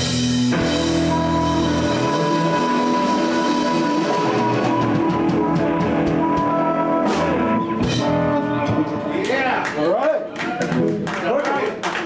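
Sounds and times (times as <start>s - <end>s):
bass guitar: 0.0s - 9.4s
drum kit: 0.0s - 9.6s
electric guitars: 0.0s - 9.7s, 10.4s - 11.3s.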